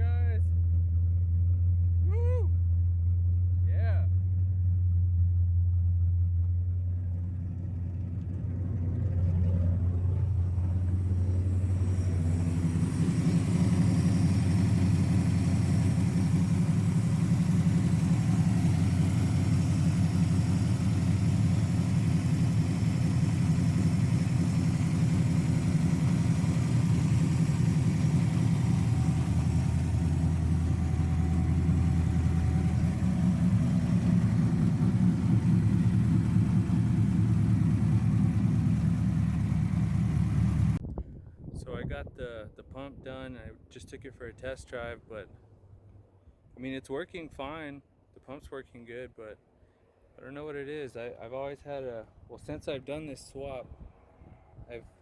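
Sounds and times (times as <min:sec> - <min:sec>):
engine running: 0:02.6 - 0:40.8
low steady hum: 0:09.1 - 0:40.8.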